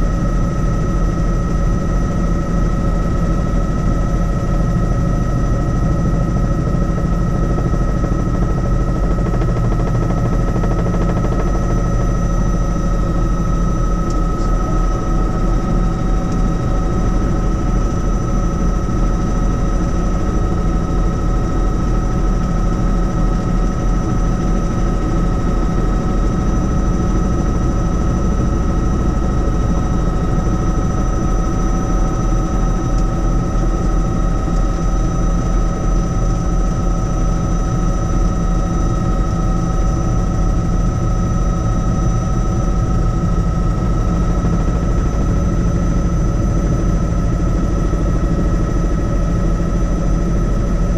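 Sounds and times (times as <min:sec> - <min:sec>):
helicopter rotor beating: 0:00.0 - 0:50.9
turbine whine: 0:00.0 - 0:50.9.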